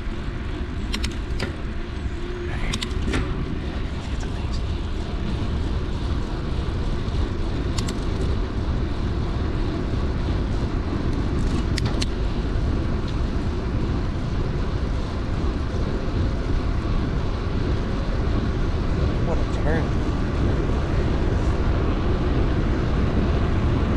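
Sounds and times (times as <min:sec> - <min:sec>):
mountain bike riding rumble: 0:00.0 - 0:23.9
wind across microphone: 0:00.0 - 0:23.9
sharp clicks: 0:00.9 - 0:01.6.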